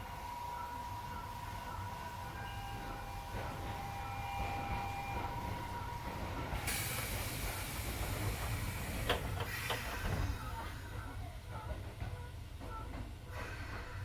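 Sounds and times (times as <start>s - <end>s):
train low rumble: 0.0s - 14.0s
compressed air hissing: 6.6s - 10.0s.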